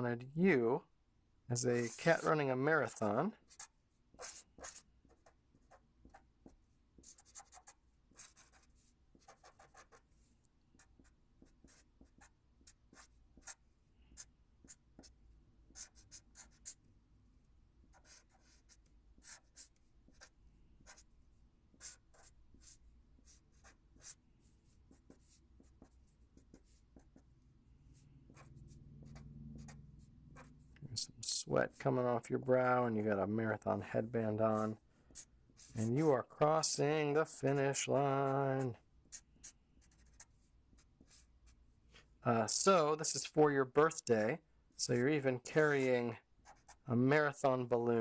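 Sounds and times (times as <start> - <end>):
faint low room hum: 0.0 - 48.0
pen drawing on paper: 1.7 - 16.8, 17.9 - 21.1, 21.7 - 27.3, 27.9 - 29.8, 34.4 - 41.6, 44.9 - 47.4.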